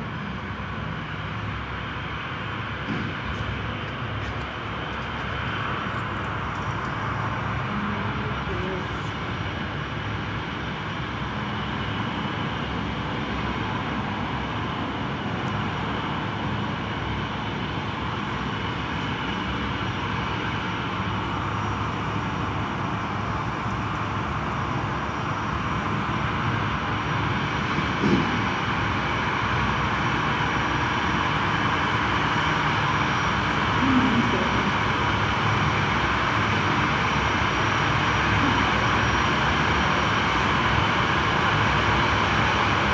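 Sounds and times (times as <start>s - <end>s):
jet engines rushing: 26.4s - 42.9s.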